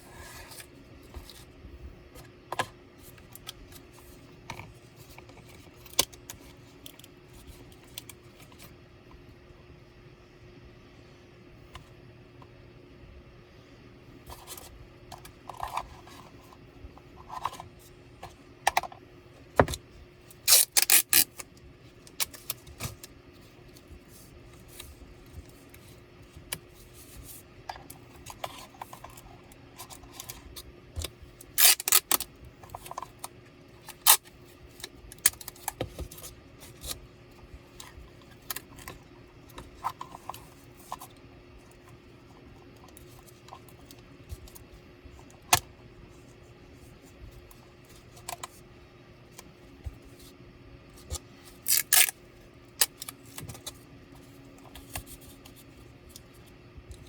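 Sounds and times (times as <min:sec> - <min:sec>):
faint steady hum: 0:00.0 - 0:57.0
small tools being handled: 0:51.6 - 0:52.1.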